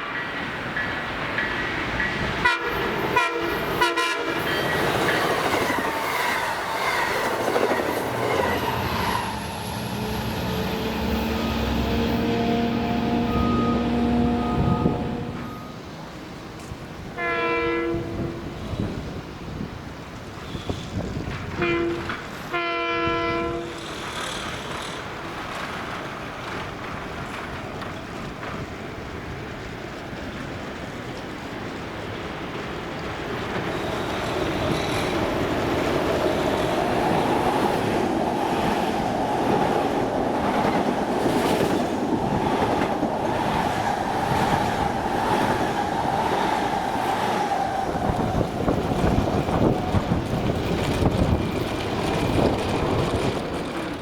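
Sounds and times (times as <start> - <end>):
train wheels clattering on rails: 0.0 - 11.8, 20.0 - 22.6, 23.6 - 54.0
train horn blasts: 2.4 - 4.6, 10.8 - 15.8, 17.2 - 18.6, 21.5 - 23.8.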